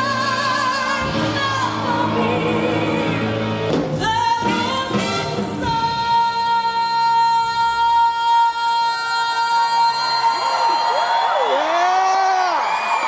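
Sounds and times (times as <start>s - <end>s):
backing music: 0.0s - 9.3s
woman singing pop: 0.0s - 10.8s.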